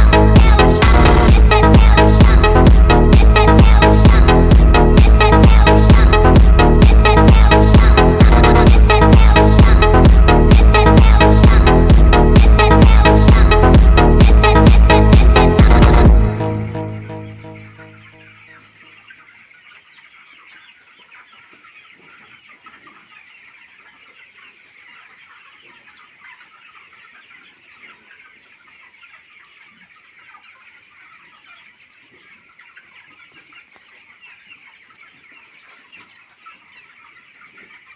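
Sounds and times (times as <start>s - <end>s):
chicks peeping: 0.0s - 37.9s.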